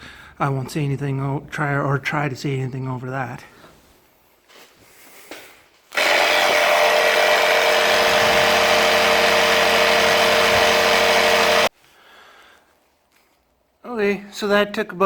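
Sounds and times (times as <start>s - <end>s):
air compressor buzzing hum: 6.0s - 11.7s.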